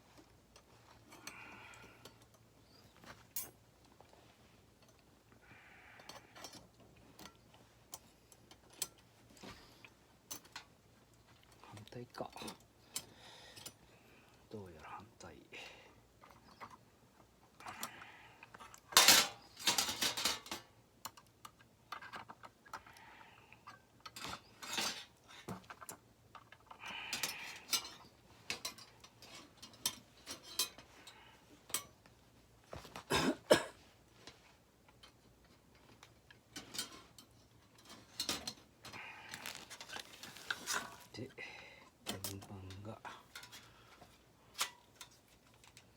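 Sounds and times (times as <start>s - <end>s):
metal parts clinking and clattering: 17.6s - 22.9s, 23.6s - 30.9s, 34.9s - 41.1s, 42.0s - 45.9s.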